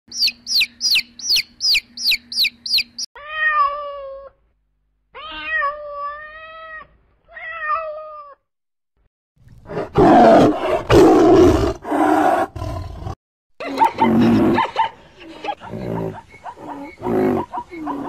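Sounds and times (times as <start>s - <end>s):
chicks peeping: 0.1s - 3.1s
cat meowing: 5.2s - 8.4s.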